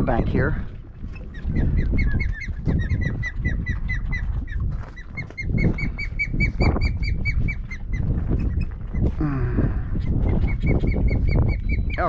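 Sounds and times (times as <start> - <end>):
wind buffeting microphone: 0.0 - 12.0
bird calling repeated notes: 1.2 - 8.6, 10.5 - 12.0.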